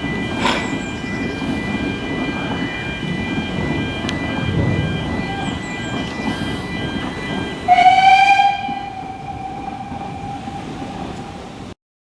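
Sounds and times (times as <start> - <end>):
train rumbling: 0.0 - 11.8
train whistle: 4.0 - 11.8.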